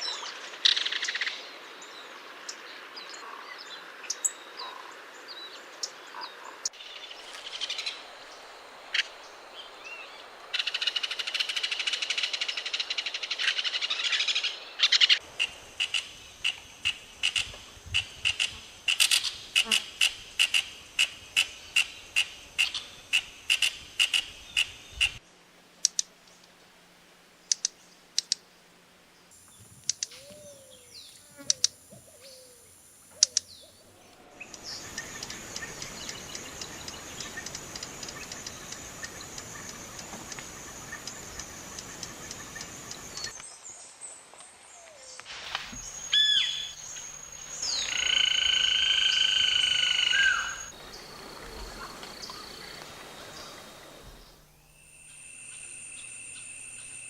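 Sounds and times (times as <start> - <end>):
steady high hiss: 6.7 - 57.0
bird chirps: 29.5 - 43.4, 44.8 - 57.0.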